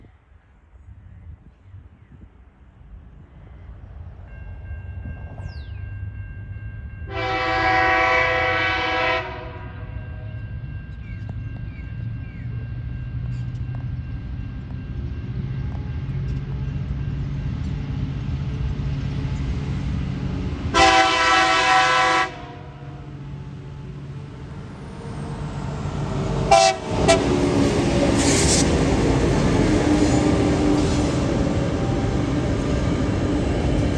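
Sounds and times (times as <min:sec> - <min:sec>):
diesel locomotive engine rumble: 0:00.0 - 0:33.9
crossing warning tone: 0:04.3 - 0:17.8, 0:20.8 - 0:33.6
locomotive horn blast: 0:07.1 - 0:09.9, 0:20.7 - 0:23.1, 0:26.5 - 0:27.6
train wheel noise: 0:23.2 - 0:33.9.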